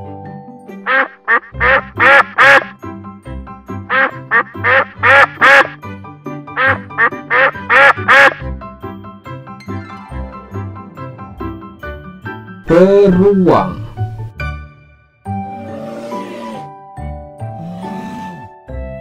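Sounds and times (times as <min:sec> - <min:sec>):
duck quacking: 0:00.8 - 0:02.7, 0:03.9 - 0:05.8, 0:06.6 - 0:08.5.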